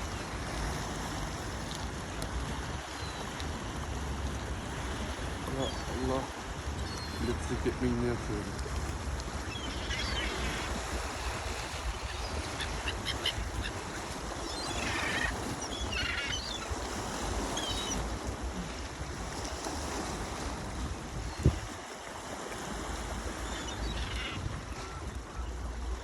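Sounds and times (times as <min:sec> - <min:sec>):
boat rumble: 0:00.0 - 0:26.0
seagulls calling: 0:02.8 - 0:03.4, 0:05.4 - 0:08.5, 0:09.2 - 0:18.3, 0:23.2 - 0:26.0.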